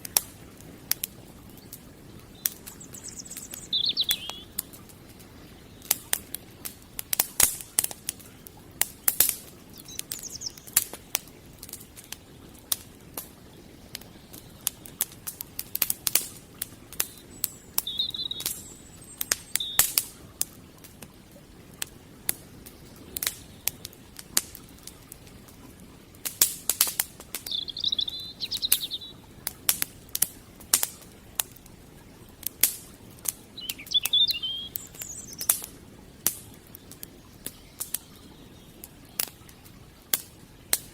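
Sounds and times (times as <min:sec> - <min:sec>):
campfire crackling: 0:00.0 - 0:40.9
bird chirps: 0:02.3 - 0:04.6, 0:09.7 - 0:10.7, 0:17.0 - 0:20.0, 0:27.4 - 0:29.2, 0:33.6 - 0:35.5.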